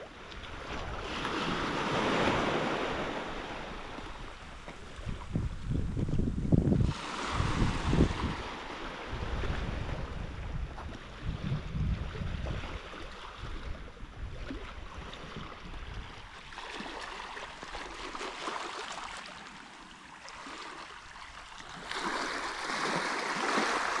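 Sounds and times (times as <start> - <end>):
waves washing onto shore: 0.0 - 6.2, 6.8 - 11.7, 12.3 - 24.0
wind buffeting microphone: 0.4 - 16.4.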